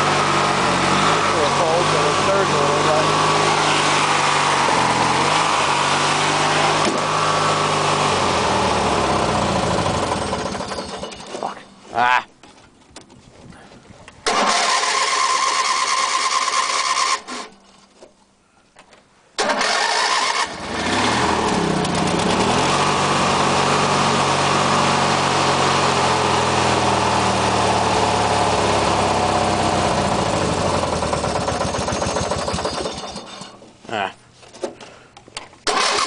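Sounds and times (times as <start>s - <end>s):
lawn tractor engine running: 0.0s - 11.6s, 14.2s - 17.5s, 19.4s - 33.7s, 35.4s - 36.0s
lawn tractor engine cranking: 0.3s - 11.6s, 14.2s - 17.6s, 19.4s - 26.1s, 28.5s - 33.7s, 35.4s - 36.0s.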